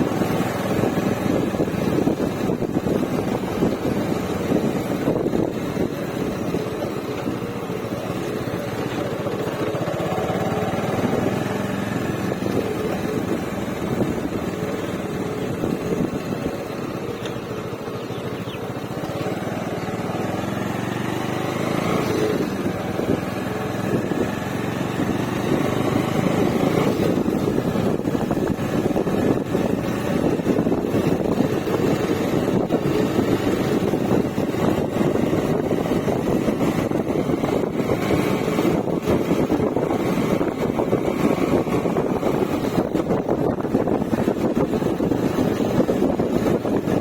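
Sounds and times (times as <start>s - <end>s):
motorcycle engine running: 0.0s - 47.0s.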